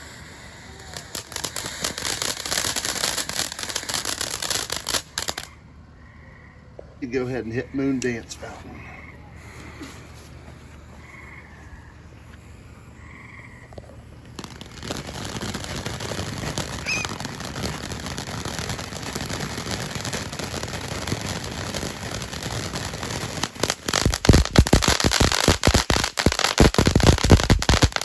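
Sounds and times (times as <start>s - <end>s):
firework fountain hissing: 0.0s - 5.5s, 7.2s - 13.0s, 13.6s - 28.0s
rapid sharp pops: 0.0s - 5.6s, 13.6s - 28.0s
frogs croaking: 5.3s - 14.7s.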